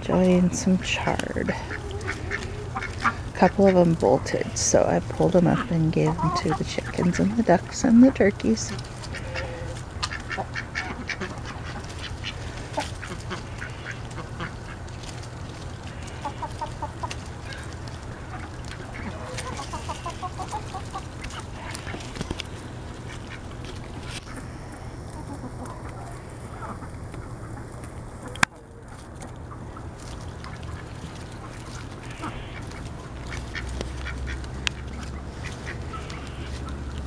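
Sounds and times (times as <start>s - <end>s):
ducks quacking: 0.0s - 37.0s
quick repeated bird calls: 8.7s - 23.5s.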